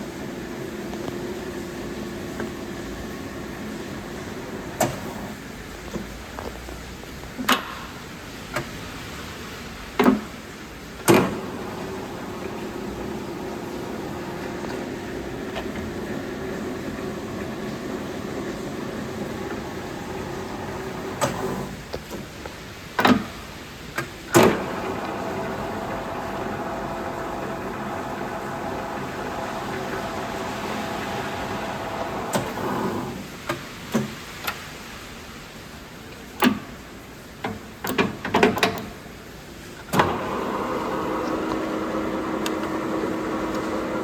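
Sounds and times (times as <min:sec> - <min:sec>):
lathe clunks: 0:00.0 - 0:06.5, 0:10.0 - 0:10.4, 0:11.0 - 0:23.4, 0:24.0 - 0:34.6, 0:39.9 - 0:44.0
lathe humming: 0:00.0 - 0:06.5, 0:11.1 - 0:22.1, 0:24.4 - 0:33.2, 0:40.0 - 0:44.0.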